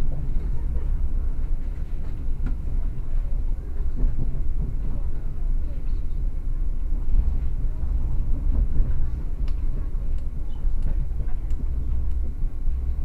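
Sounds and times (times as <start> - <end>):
train rumble inside carriage: 0.0 - 13.0
faint clicks: 9.4 - 12.3.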